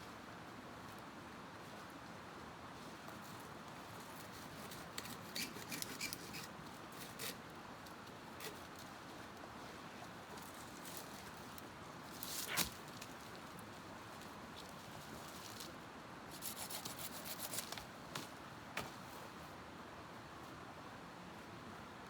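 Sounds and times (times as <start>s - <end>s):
small clicks and rustles: 2.8s - 15.8s.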